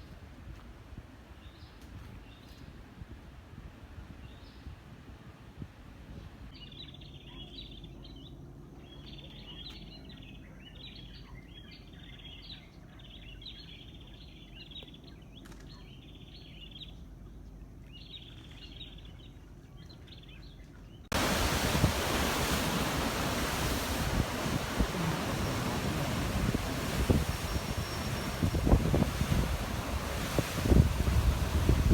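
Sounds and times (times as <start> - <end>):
birds twittering: 18.0 - 31.9
surf: 21.1 - 31.9
wind buffeting microphone: 21.1 - 31.9.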